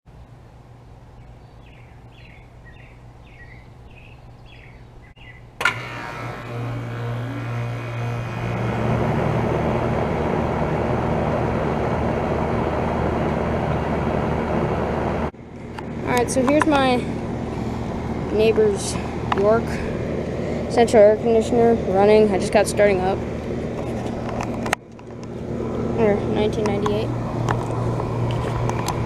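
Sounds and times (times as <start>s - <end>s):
birds chirping: 1.1s - 5.6s
air conditioner hum and whoosh: 5.5s - 29.0s
air conditioner click: 5.6s - 6.7s.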